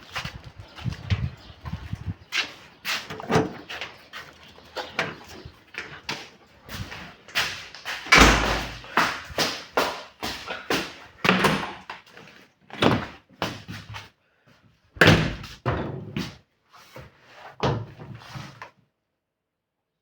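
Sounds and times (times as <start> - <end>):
knocks and bangs: 8.1 - 9.5.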